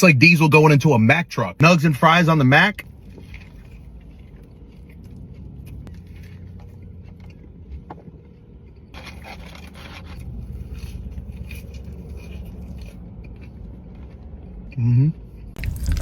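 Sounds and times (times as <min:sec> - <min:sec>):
food scraping and rustling: 0:08.9 - 0:13.6
steady low rumble: 0:10.2 - 0:16.0.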